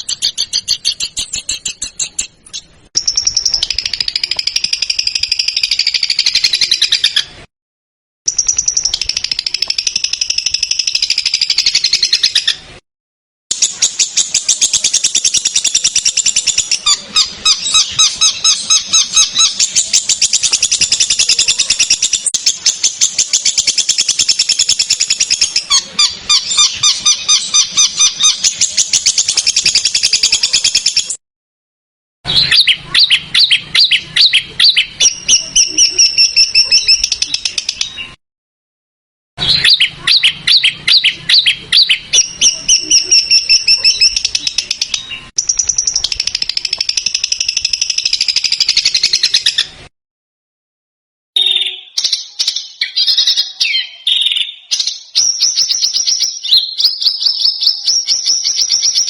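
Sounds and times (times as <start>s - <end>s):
high chattering bird notes: 0.0s - 7.3s, 13.5s - 31.2s, 32.3s - 38.2s, 39.4s - 49.8s
songbird song: 0.0s - 7.4s, 8.3s - 12.7s, 13.5s - 31.2s, 32.3s - 38.2s, 39.4s - 49.8s, 51.4s - 59.0s.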